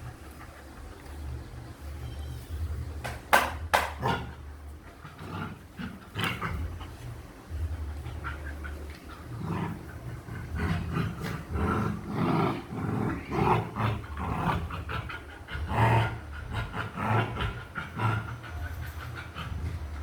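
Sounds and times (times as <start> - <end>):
steady low hum: 0.0 - 20.0
puppies vocalising: 4.3 - 20.0.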